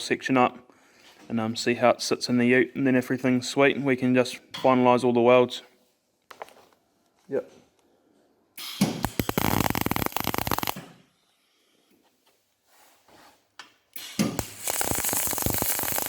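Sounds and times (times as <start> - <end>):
arc welder crackling: 8.6 - 11.0, 13.9 - 16.0.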